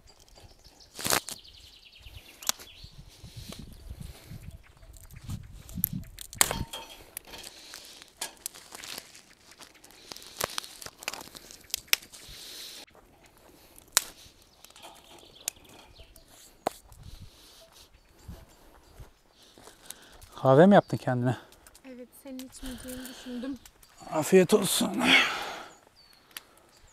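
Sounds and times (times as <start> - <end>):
small objects clicking and knocking: 5.7 - 12.2, 13.8 - 16.8
crinkling and rustling: 5.8 - 12.3.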